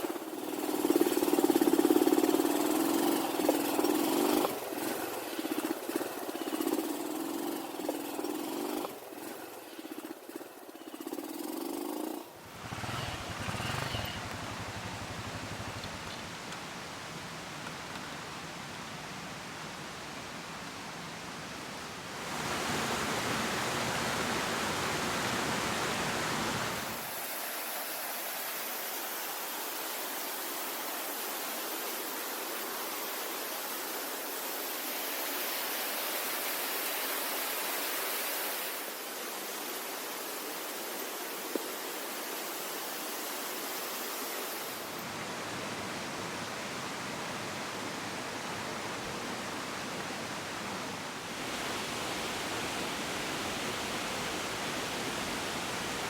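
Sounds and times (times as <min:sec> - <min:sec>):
waterfall roaring: 0:12.4 - 0:16.1.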